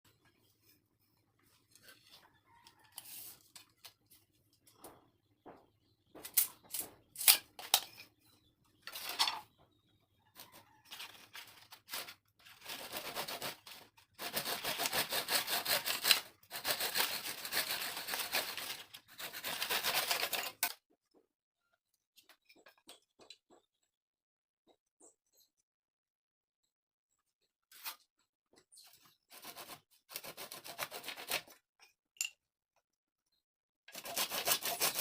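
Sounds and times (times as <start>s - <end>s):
wood rasping: 11.9s - 20.6s, 29.3s - 31.6s, 33.9s - 35.0s.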